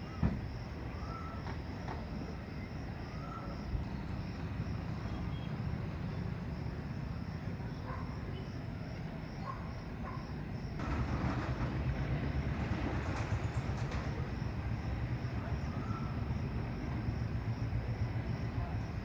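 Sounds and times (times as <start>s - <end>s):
insects trilling: 0.0s - 10.8s.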